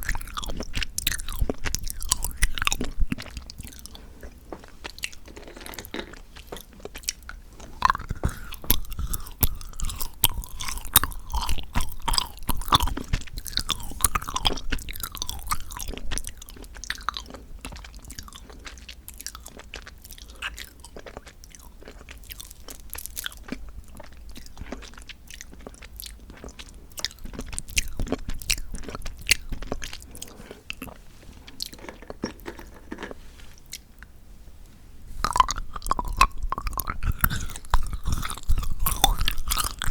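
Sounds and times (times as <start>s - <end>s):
moist mouth sounds: 0.0s - 19.0s, 35.1s - 39.9s
chewing and crunching chocolate: 0.0s - 34.2s, 35.2s - 39.9s.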